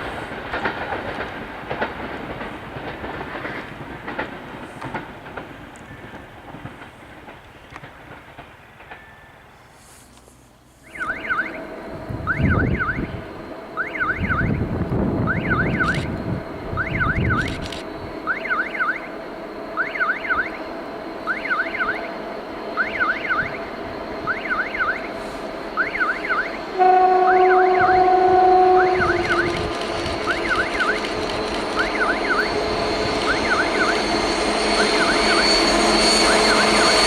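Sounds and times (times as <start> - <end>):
level crossing signal warbling: 10.9 - 11.6, 12.2 - 13.1, 13.8 - 14.6, 15.2 - 16.1, 16.8 - 17.5, 18.2 - 19.1, 19.8 - 20.6, 21.2 - 22.1, 22.8 - 25.1, 25.8 - 31.1, 31.8 - 37.0
wind buffeting microphone: 11.8 - 18.2, 27.3 - 31.8
locomotive horn two-note chord: 26.7 - 29.6.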